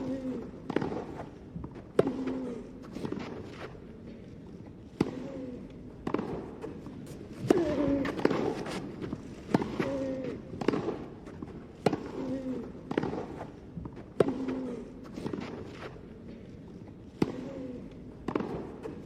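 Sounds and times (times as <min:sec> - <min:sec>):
racket striking tennis ball: 0:00.0 - 0:03.8, 0:04.9 - 0:16.1, 0:17.1 - 0:17.6, 0:18.2 - 0:19.0
player grunting: 0:07.5 - 0:08.3.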